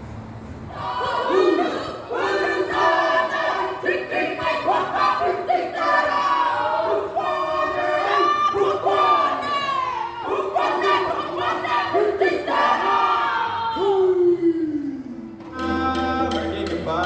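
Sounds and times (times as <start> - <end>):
group chanting and singing: 0.7 - 17.0
shouted calls: 0.8 - 14.2.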